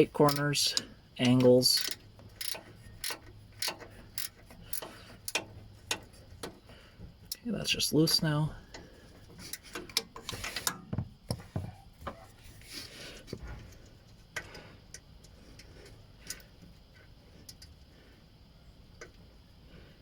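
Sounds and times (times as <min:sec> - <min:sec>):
ratcheting wrench clicking: 0:00.2 - 0:06.6.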